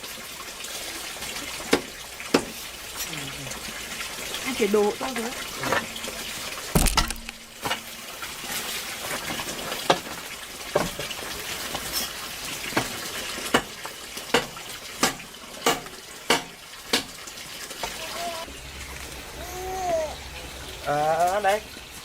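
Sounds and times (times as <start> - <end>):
rushing water-like noise: 0.0 - 22.0
sharp knocks: 6.8 - 7.5.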